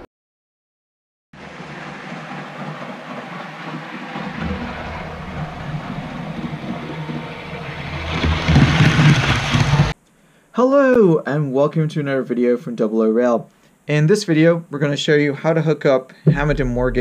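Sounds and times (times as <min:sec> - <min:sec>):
train approaching with low rumble: 0:01.4 - 0:10.0.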